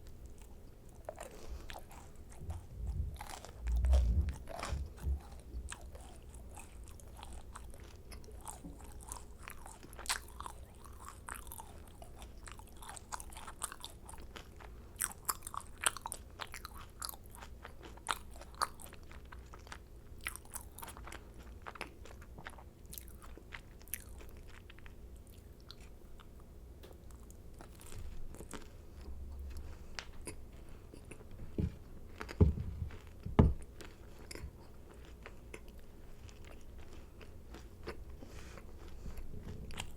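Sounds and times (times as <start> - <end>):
chewing clicks and crackles: 0.0 - 39.9
macarons crunching: 0.0 - 39.9
dull thumps: 32.4 - 33.6.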